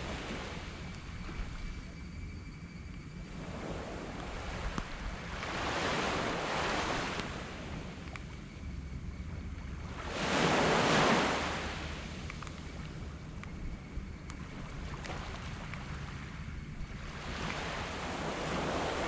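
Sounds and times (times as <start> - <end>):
waves breaking on sand beach: 0.0 - 0.8, 3.4 - 7.9, 10.0 - 12.4, 17.0 - 19.0.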